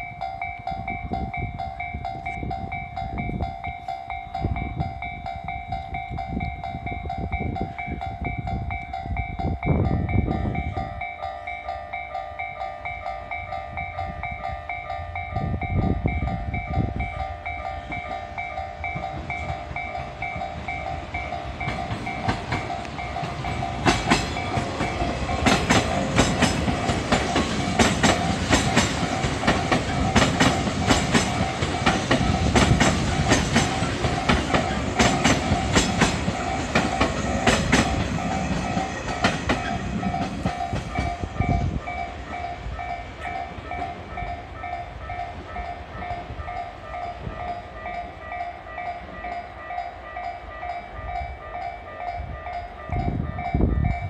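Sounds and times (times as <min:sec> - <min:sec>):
level-crossing bell ringing: 0:00.0 - 0:54.0
train wheels clattering: 0:17.0 - 0:48.2.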